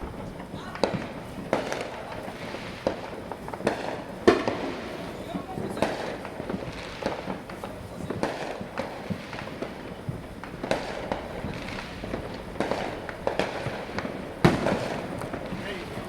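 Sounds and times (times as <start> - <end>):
sharp loud bang: 0.0 - 1.0
fireworks bangs and pops: 0.0 - 16.0.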